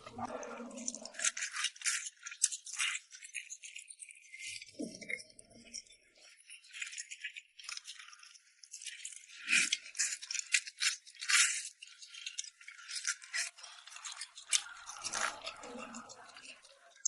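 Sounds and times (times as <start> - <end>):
eating noodles crackly clicks: 0.5 - 17.0.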